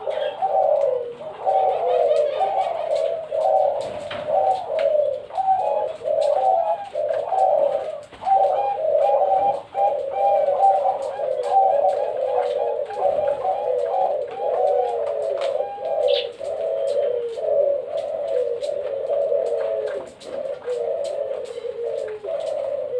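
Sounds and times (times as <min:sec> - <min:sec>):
doves cooing: 0:00.0 - 0:22.9
high bird chirp: 0:16.0 - 0:16.4.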